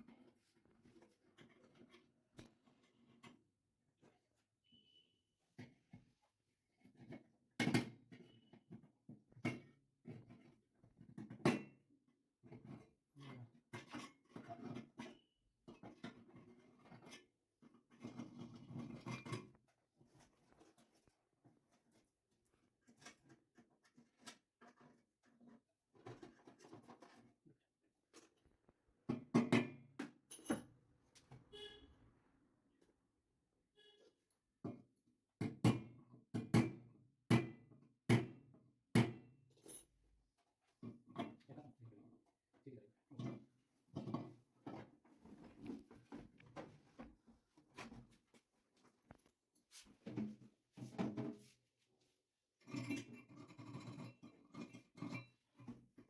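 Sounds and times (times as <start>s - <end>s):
objects scraping and knocking: 22.8s - 27.4s, 43.2s - 51.6s.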